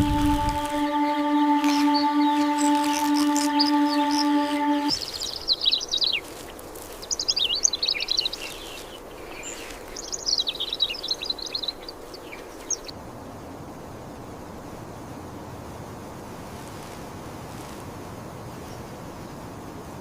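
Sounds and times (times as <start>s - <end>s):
birds chirping: 0.0s - 12.9s
steady background hiss: 0.0s - 20.0s.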